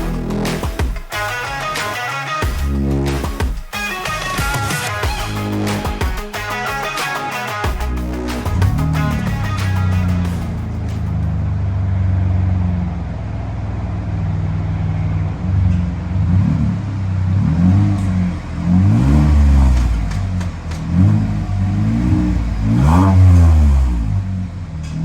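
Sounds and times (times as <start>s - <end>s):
truck engine idling: 4.1s - 7.0s, 7.7s - 25.0s
engine revving in blips: 7.7s - 25.0s.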